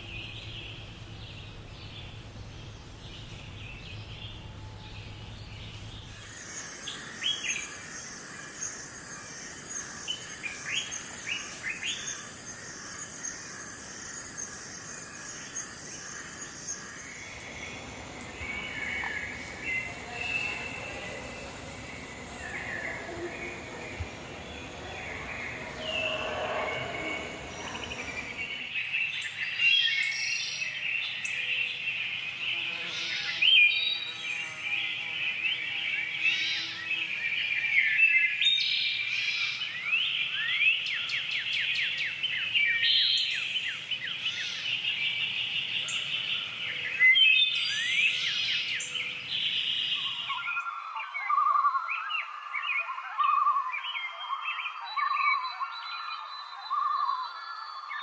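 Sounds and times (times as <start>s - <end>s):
birds chirping: 0.0s - 8.2s, 16.1s - 28.8s
high-pitched pulsing: 17.3s - 28.7s.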